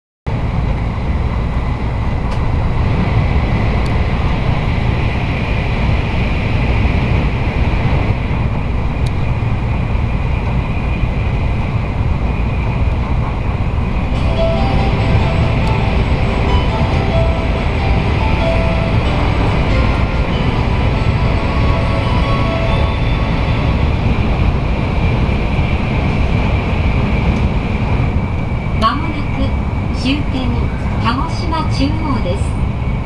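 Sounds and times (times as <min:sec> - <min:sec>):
train interior rumble and hiss: 0:00.3 - 0:33.0
announcement chime: 0:14.2 - 0:24.1.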